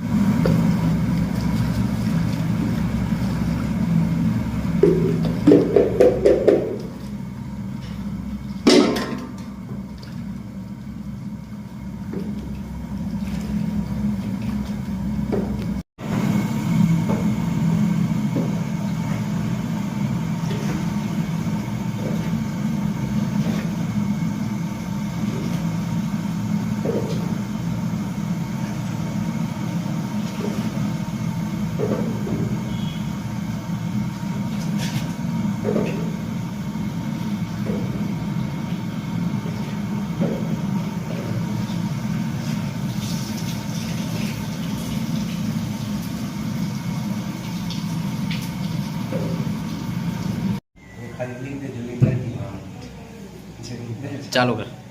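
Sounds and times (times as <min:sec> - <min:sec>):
water swishing in washer: 0:00.0 - 0:50.6
washing machine motor hum: 0:00.0 - 0:54.9.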